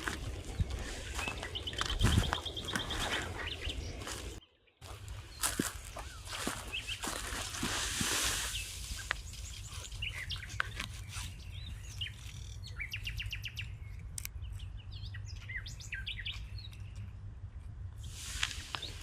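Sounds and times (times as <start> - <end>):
steady low rumble: 0.0 - 10.5
small birds chirping: 0.0 - 17.2.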